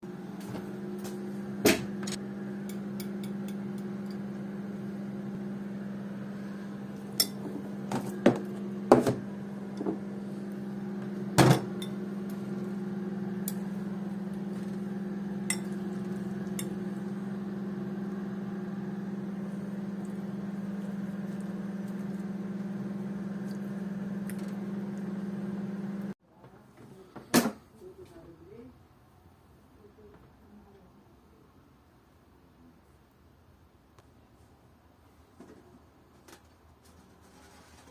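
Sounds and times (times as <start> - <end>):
microwave oven humming: 0.0 - 26.2.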